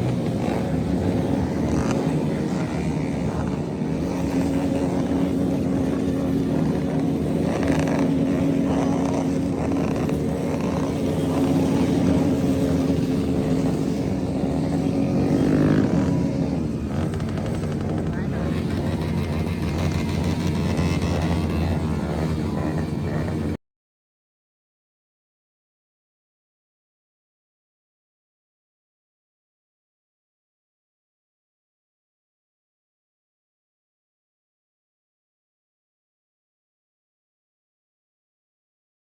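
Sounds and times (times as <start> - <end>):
motorcycle engine running: 0.0 - 23.6.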